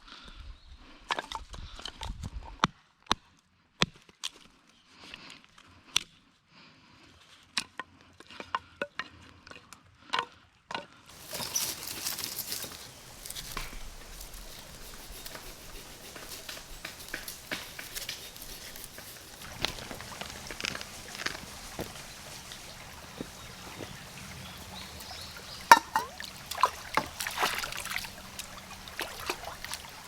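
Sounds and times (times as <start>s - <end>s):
camping gear clicks and knocks: 11.1s - 30.0s
tarp rustling: 11.1s - 30.0s.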